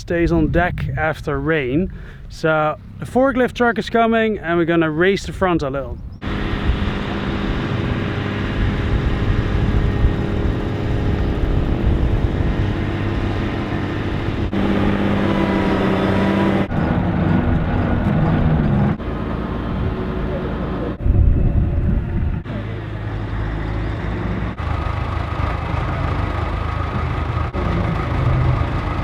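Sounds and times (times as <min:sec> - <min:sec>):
forklift engine revving: 0:06.2 - 0:29.0.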